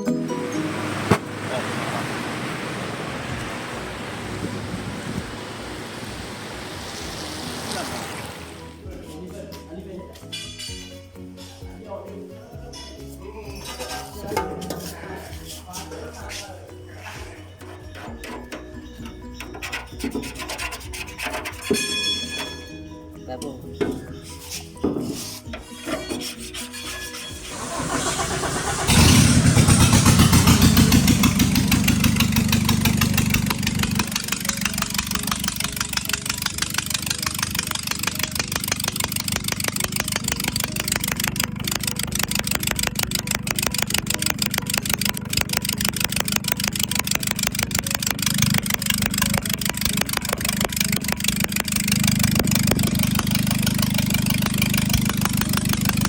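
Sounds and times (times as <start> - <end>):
diesel engine starting and idling: 27.3 - 56.0.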